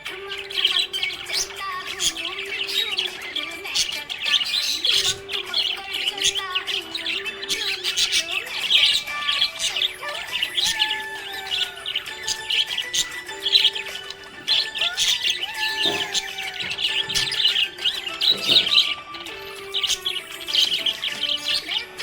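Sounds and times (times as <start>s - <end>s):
budgerigars chattering: 0.0s - 22.0s.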